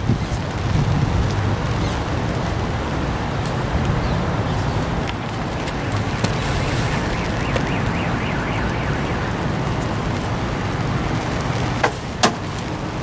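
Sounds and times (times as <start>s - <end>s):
vehicle road and wind noise: 0.0s - 13.0s
faint warbling tone: 5.5s - 10.3s.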